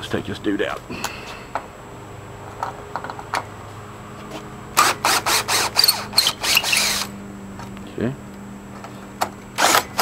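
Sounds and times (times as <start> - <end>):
cordless driver bursts: 4.8 - 7.1, 9.6 - 10.0.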